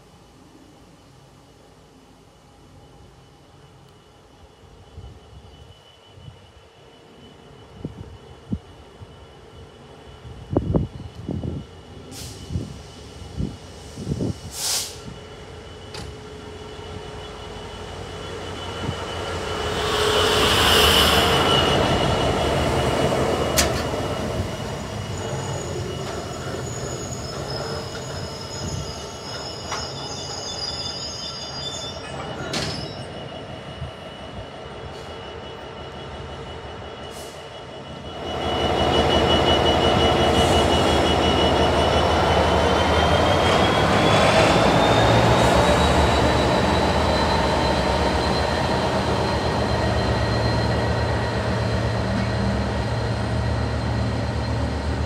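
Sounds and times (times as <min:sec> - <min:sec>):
diesel locomotive passing: 0:01.9 - 0:55.0
train wheels rumbling: 0:10.4 - 0:31.0
high wheel squeal: 0:15.0 - 0:55.0.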